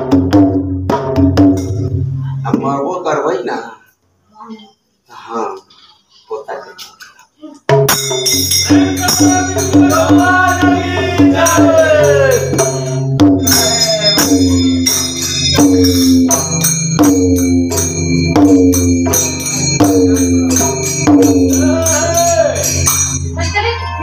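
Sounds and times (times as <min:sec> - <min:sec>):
drum beat: 0:00.0 - 0:02.8, 0:07.7 - 0:23.7
hand cymbals: 0:07.7 - 0:24.0
sustained held notes: 0:08.4 - 0:24.0
person singing: 0:08.7 - 0:12.8, 0:20.0 - 0:22.9.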